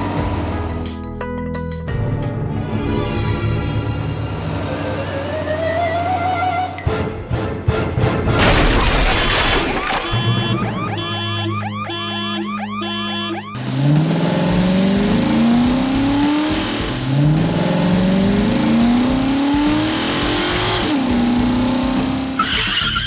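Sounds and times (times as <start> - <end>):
vehicle engine revving: 0.0 - 1.0, 3.7 - 6.9, 13.6 - 23.0
music: 0.0 - 8.8, 9.9 - 13.6, 14.6 - 23.0.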